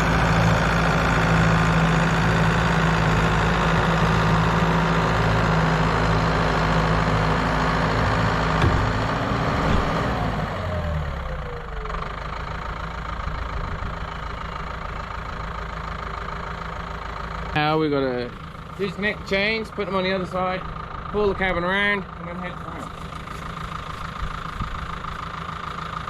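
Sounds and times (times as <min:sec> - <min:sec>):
tractor engine running: 0:00.0 - 0:26.0
short knocks: 0:08.0 - 0:09.9.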